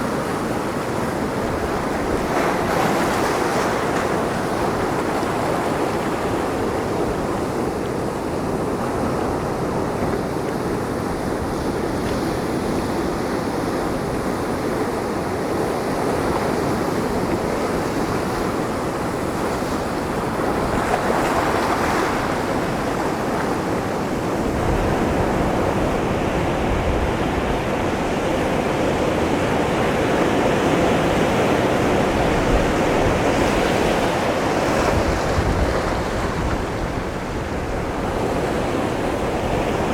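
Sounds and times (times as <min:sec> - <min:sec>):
waves breaking on rocks: 0:15.1 - 0:39.9
wind buffeting microphone: 0:15.6 - 0:39.9.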